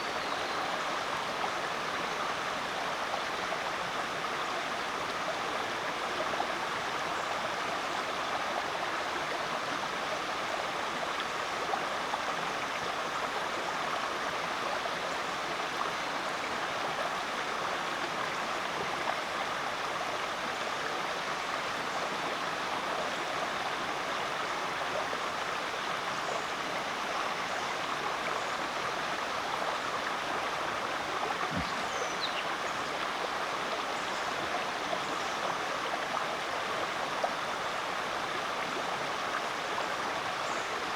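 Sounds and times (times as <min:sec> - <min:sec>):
creek flowing over rocks: 0:00.0 - 0:40.9.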